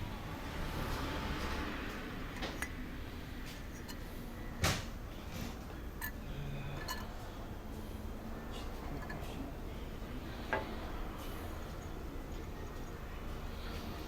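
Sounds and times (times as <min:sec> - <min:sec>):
tools clicking and knocking: 0:06.8 - 0:07.2.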